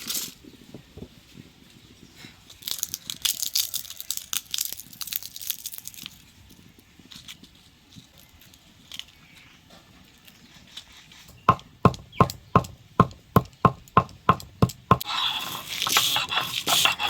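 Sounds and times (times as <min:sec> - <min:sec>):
kitchen tool knocking: 0:11.3 - 0:15.0.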